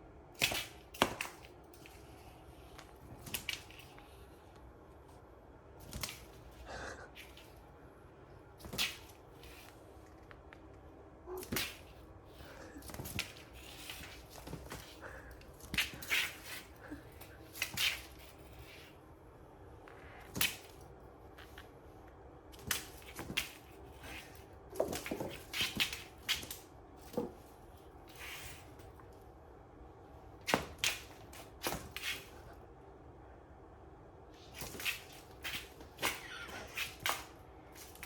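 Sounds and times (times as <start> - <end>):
cats playing with ribbon toy: 0.4 - 4.6, 5.7 - 7.8, 8.4 - 10.2, 11.3 - 19.0, 22.5 - 29.1, 30.3 - 32.6, 34.3 - 38.0
rustles taps and swishes: 8.4 - 19.0, 22.5 - 29.3, 34.4 - 38.0.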